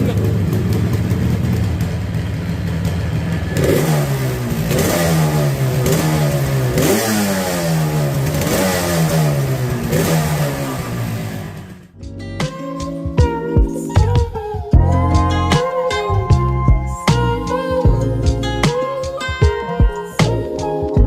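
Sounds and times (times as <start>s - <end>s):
motorcycle engine revving: 0.0s - 12.0s
music: 12.0s - 21.0s.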